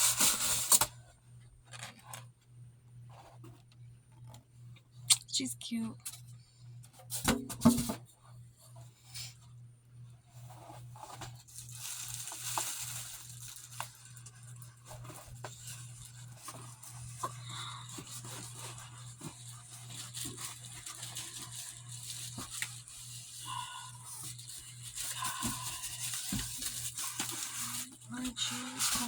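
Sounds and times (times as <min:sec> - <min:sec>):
packaging rustling and crinkling: 0:10.4 - 0:29.0.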